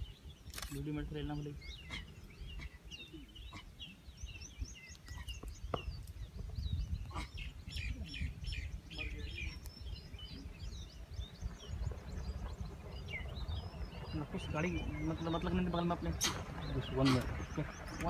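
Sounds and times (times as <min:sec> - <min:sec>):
small birds chirping: 0:00.0 - 0:18.0
low rumble: 0:05.5 - 0:18.0.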